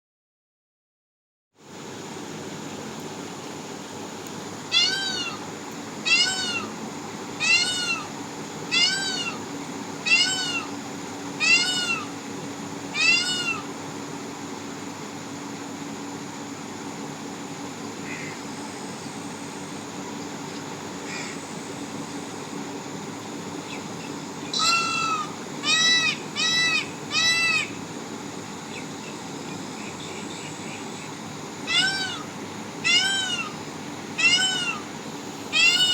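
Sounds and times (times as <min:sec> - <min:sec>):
peacock calling: 0:04.7 - 0:06.8, 0:07.4 - 0:10.8, 0:11.4 - 0:12.2, 0:12.9 - 0:13.8, 0:23.7 - 0:27.8, 0:29.8 - 0:35.9.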